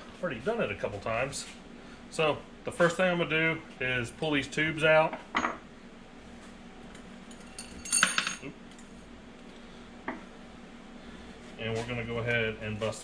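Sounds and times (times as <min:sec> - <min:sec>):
small metal parts clinking: 0:07.3 - 0:08.4.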